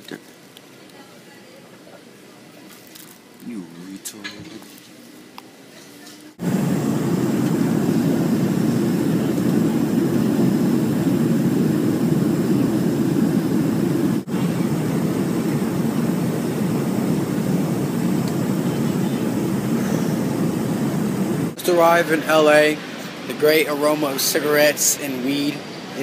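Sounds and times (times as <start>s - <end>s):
jet cabin engine and airflow rush: 6.4s - 26.0s.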